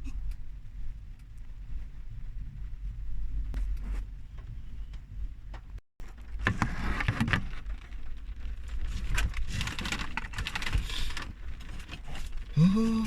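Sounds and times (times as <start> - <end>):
steady low rumble: 0.0 - 5.8.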